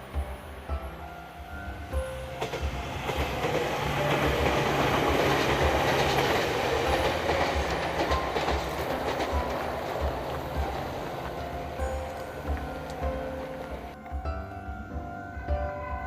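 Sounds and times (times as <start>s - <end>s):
electric train passing: 0.0s - 16.0s
wheels clattering over rail joints: 2.2s - 14.0s.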